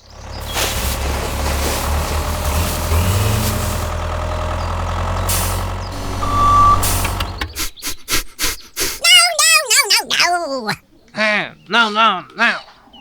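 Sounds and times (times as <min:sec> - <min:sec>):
vehicle engine running: 0:00.0 - 0:09.0
short beep: 0:06.0 - 0:07.5.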